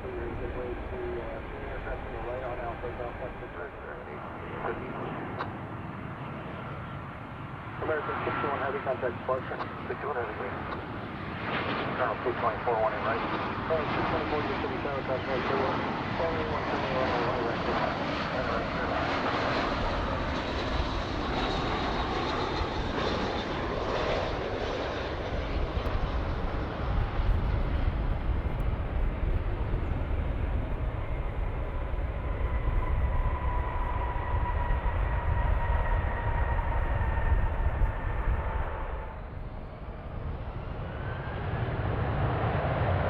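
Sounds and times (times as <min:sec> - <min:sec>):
jet engine rush and rumble: 0:00.0 - 0:43.0
faint whine dropping in pitch: 0:11.8 - 0:41.9.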